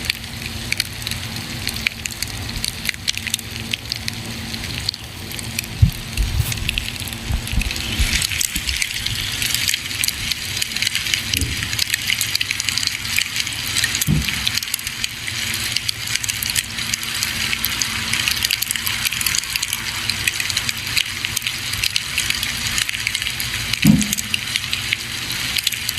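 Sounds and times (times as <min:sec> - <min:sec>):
dull low thuds: 0:05.8 - 0:08.8.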